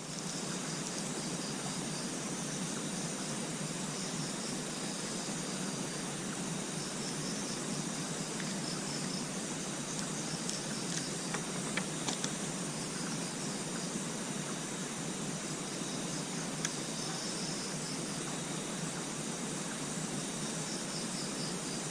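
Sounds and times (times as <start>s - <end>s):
insects chirping: 0.0s - 21.9s
steady hiss: 0.0s - 21.9s.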